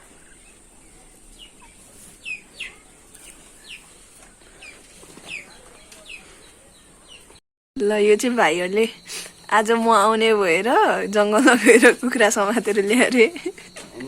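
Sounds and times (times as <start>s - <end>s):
chickens peeping: 0.0s - 7.4s, 12.7s - 14.0s.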